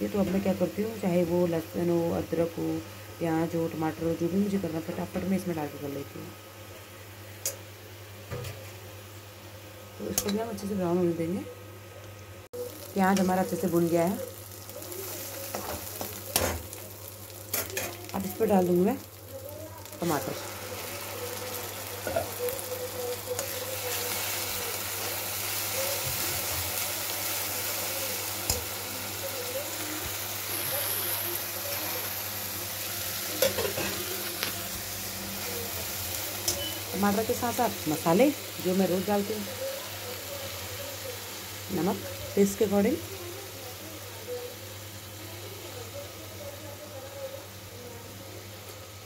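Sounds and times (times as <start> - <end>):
puree sizzling in hot oil: 12.5 - 49.0.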